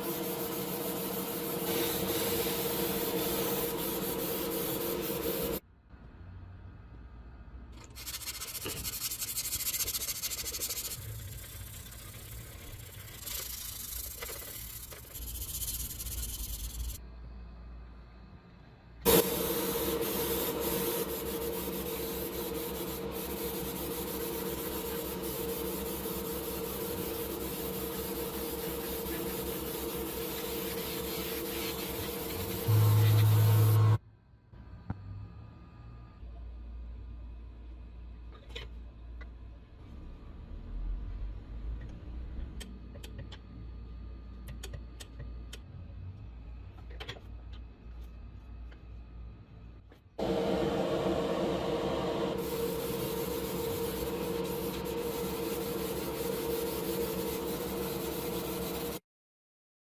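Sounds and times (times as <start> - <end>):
sanding a model car by hand: 7.8 - 17.0, 19.9 - 33.8, 52.4 - 59.0
steady hum: 19.0 - 34.0, 50.2 - 59.0.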